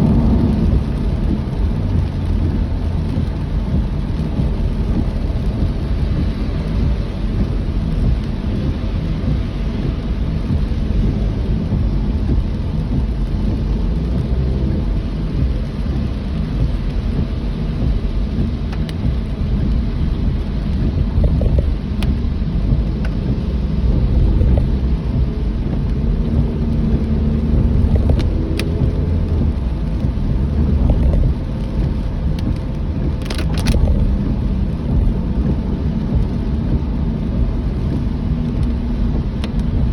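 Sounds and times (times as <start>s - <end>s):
car rumbling on the move: 0.0s - 39.9s
steady rain: 0.0s - 39.9s
sharp ticks: 20.4s - 39.9s.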